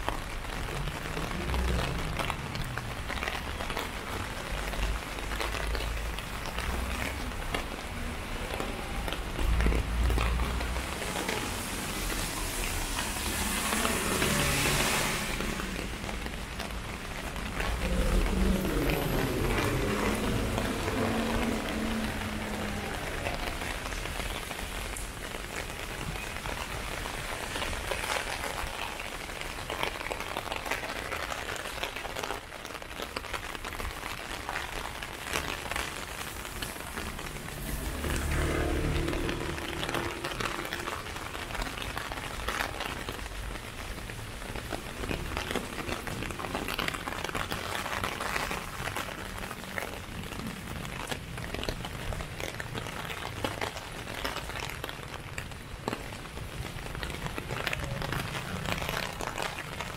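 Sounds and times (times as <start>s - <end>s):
heavy rain on an umbrella: 0.0s - 59.9s
low rumble: 17.4s - 22.7s.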